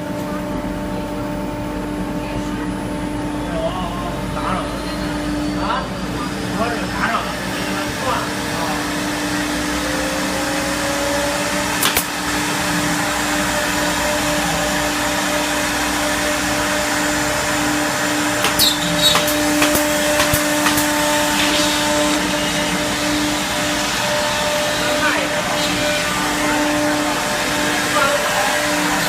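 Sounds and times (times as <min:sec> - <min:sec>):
wood router machine hum: 0:00.0 - 0:29.0
sharp clicks or knocks: 0:11.8 - 0:12.1, 0:18.4 - 0:21.5.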